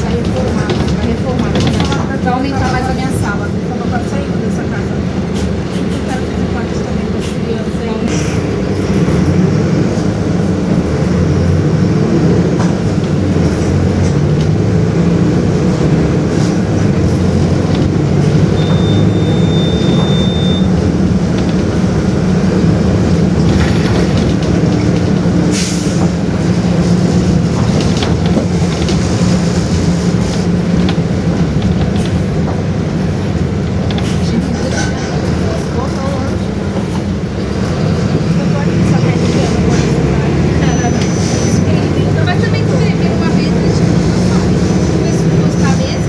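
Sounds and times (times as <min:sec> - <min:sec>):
bus diesel engine running: 0:00.0 - 0:46.0
body rattles: 0:08.8 - 0:39.9
high steady beep: 0:18.4 - 0:20.8.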